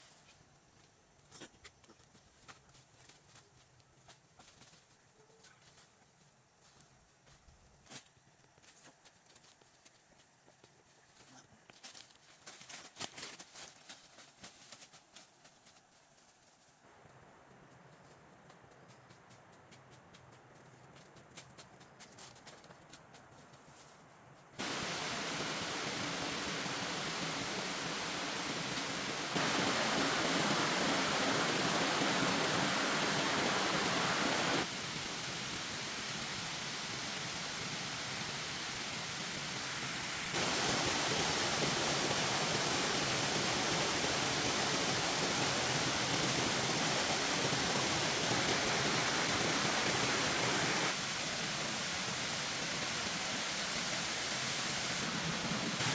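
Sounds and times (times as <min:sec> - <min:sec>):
rushing water: 0:24.6 - 0:55.9.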